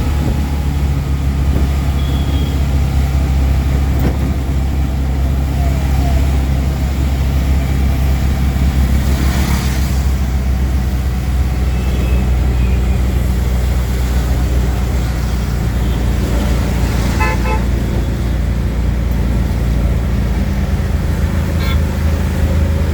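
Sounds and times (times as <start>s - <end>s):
auto rickshaw engine running: 0.0s - 22.9s
road traffic: 0.0s - 22.9s
vehicle horn short toots: 1.9s - 2.7s, 17.1s - 18.2s.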